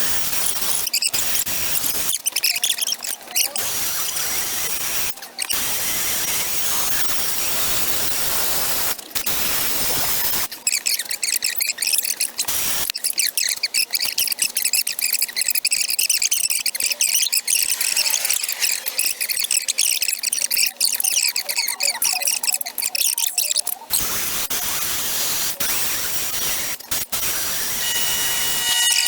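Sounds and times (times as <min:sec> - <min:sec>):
grinder cutter chattering on metal: 0:23.4 - 0:29.0
die grinder hissing: 0:24.0 - 0:29.0.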